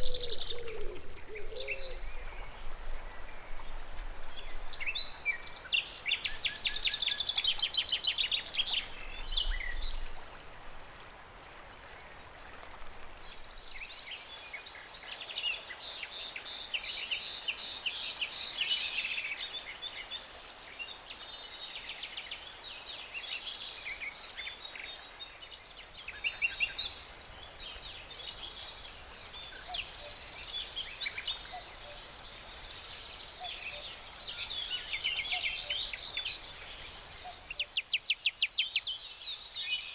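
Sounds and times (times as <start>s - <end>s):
songbirds trilling and chirping: 0.0s - 10.4s, 11.8s - 39.9s.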